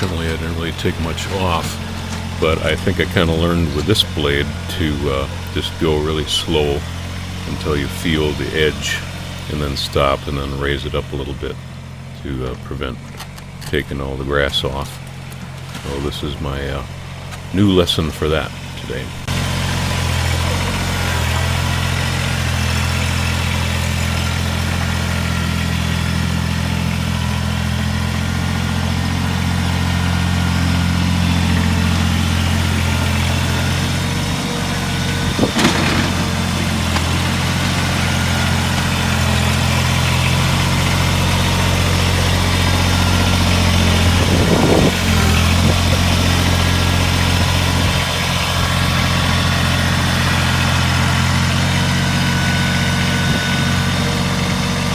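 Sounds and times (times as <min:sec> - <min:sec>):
tractor diesel engine running: 0:00.0 - 0:54.9
short clatter: 0:34.2 - 0:40.4.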